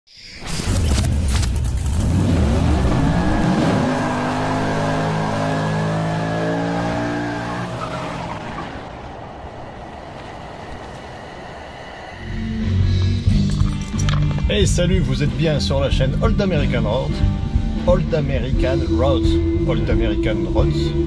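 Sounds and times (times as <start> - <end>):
car engine revving: 0.6 - 14.4.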